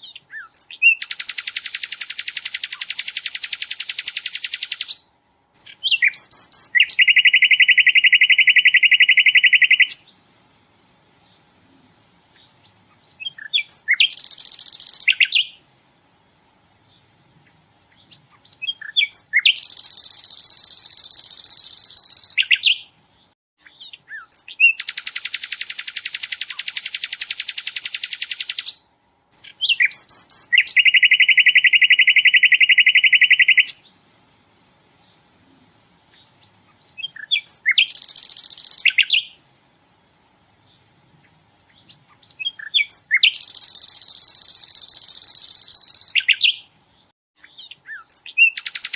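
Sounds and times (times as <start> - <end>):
bird rapid trills: 0.0 - 5.0, 12.6 - 15.6, 18.0 - 22.8, 24.2 - 28.8, 36.4 - 39.4, 41.8 - 46.6, 47.6 - 48.9
bird sharp chirps: 0.0 - 10.1, 12.4 - 15.7, 16.9 - 33.9, 36.1 - 39.4, 41.7 - 46.7, 47.4 - 48.9.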